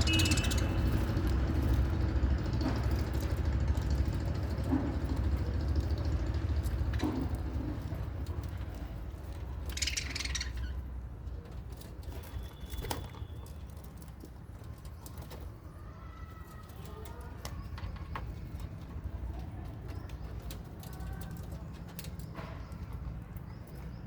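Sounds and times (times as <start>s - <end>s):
bird chirps: 0.0s - 1.2s, 9.7s - 10.8s
birds calling: 0.0s - 4.1s, 5.3s - 11.4s.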